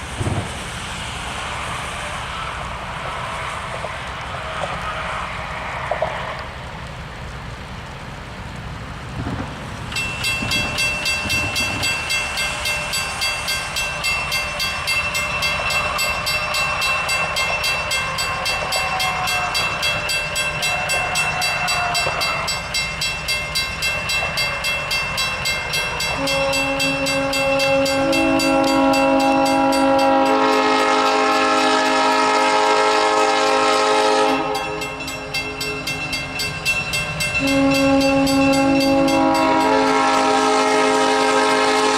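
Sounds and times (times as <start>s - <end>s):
train bell ringing: 9.9s - 32.5s, 33.3s - 41.9s
chorded train horn blast: 25.8s - 35.8s, 37.3s - 41.9s.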